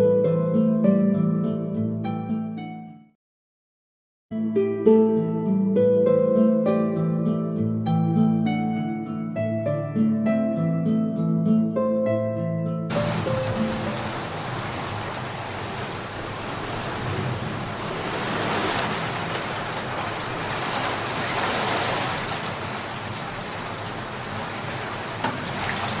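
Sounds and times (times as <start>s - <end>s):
waterfall rushing: 12.9s - 26.0s.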